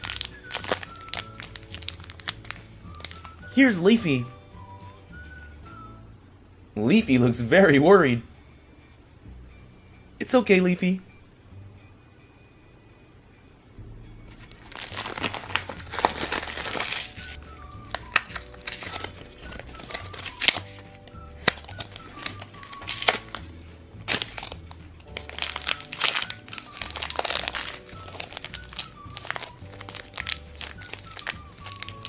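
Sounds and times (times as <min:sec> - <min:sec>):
plastic packaging crinkling: 0:00.0 - 0:04.0, 0:14.4 - 0:32.0
light background music: 0:00.0 - 0:32.0.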